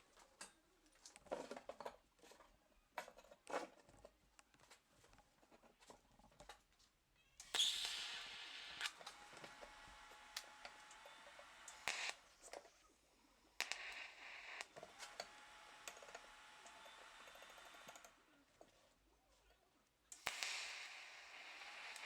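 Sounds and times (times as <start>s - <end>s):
welder hiss: 7.4s - 12.4s, 13.6s - 18.1s, 20.2s - 22.0s
scattered clicks: 7.4s - 12.7s, 13.6s - 18.2s, 20.1s - 22.0s
faint welder whine: 7.4s - 18.7s, 20.1s - 22.0s.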